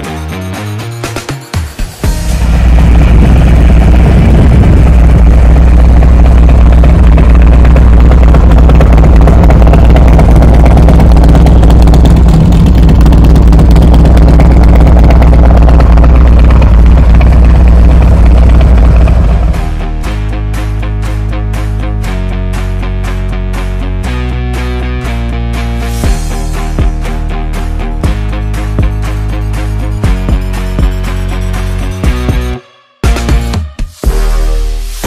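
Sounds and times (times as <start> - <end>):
motorcycle engine idling: 2.0 - 20.1.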